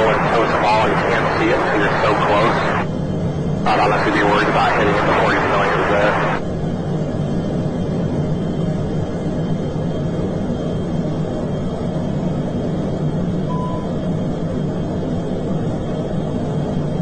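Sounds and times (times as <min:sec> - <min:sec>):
jet cockpit roar: 0:00.0 - 0:17.0
short beep: 0:13.5 - 0:14.0.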